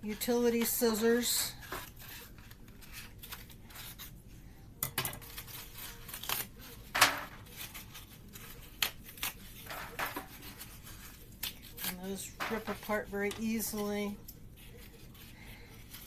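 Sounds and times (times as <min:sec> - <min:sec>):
scissors cutting paper carton: 0:05.2 - 0:06.8, 0:07.4 - 0:13.9.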